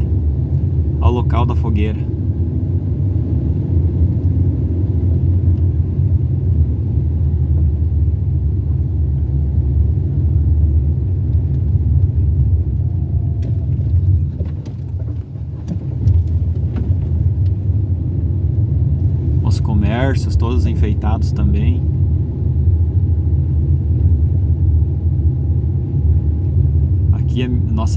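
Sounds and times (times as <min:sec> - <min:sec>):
car engine and road rumble: 0:00.0 - 0:27.9.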